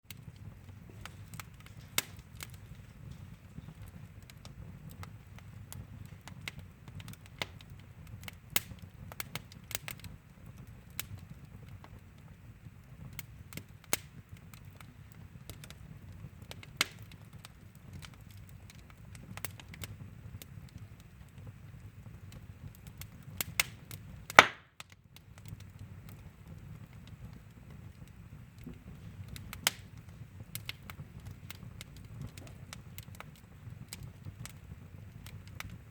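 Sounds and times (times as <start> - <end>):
fire crackling in a fireplace: 0.0 - 35.9
loud pop: 24.4 - 24.7.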